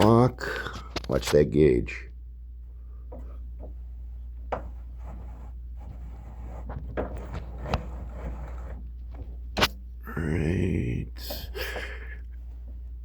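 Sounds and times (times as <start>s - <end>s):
steady low hum: 0.0s - 13.0s
faint rubbing: 3.8s - 9.4s.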